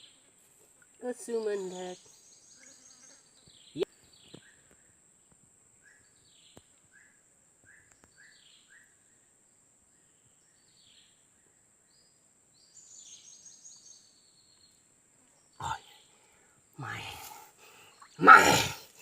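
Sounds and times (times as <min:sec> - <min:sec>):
high insect drone: 0:15.4 - 0:19.0.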